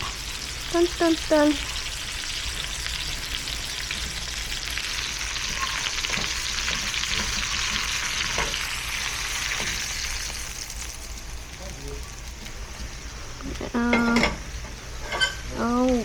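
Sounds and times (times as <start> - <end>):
meat sizzling in a pan: 0.0 - 16.0
stirring knocks: 5.4 - 8.6.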